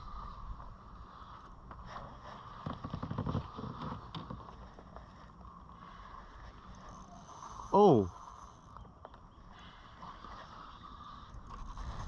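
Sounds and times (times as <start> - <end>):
wind rumble on microphone: 11.4 - 12.0.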